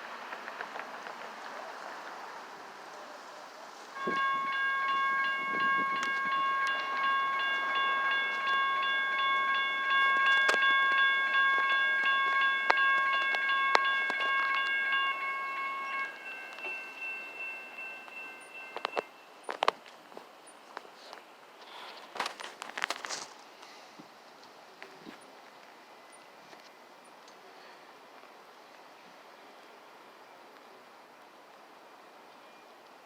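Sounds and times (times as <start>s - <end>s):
street noise: 0.0s - 33.0s
railroad crossing bell ringing: 4.0s - 19.7s.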